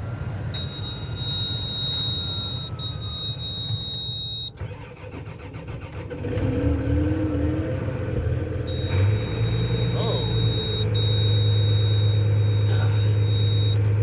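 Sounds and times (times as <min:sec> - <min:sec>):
tractor diesel engine rumbling: 0:00.0 - 0:14.0.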